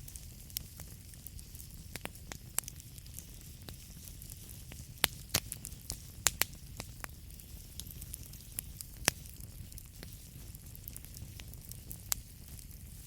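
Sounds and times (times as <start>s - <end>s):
logs crackling and popping: 0.0s - 13.0s
rumble and hiss of flames: 0.0s - 13.0s.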